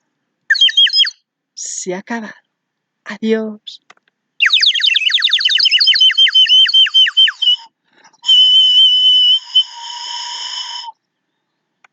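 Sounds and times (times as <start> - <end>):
bird-like whistled song: 0.5 - 1.2, 4.4 - 11.6.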